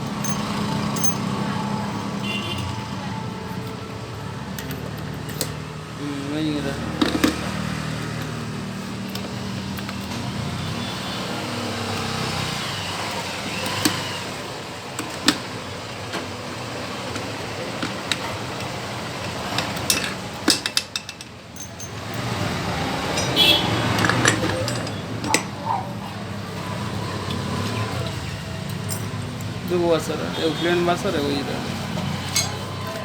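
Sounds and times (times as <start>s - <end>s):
metallic clinks of tools: 0.1s - 1.4s, 19.8s - 22.4s, 28.6s - 29.5s.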